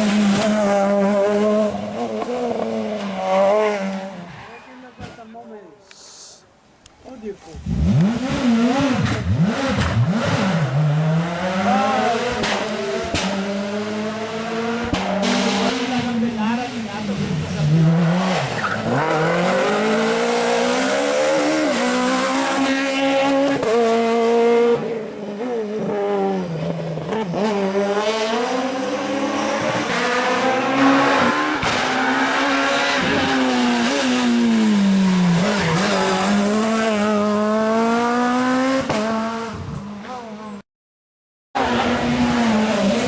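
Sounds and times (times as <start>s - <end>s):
rally car engine revving: 0.0s - 5.2s, 7.5s - 40.6s, 41.6s - 43.0s.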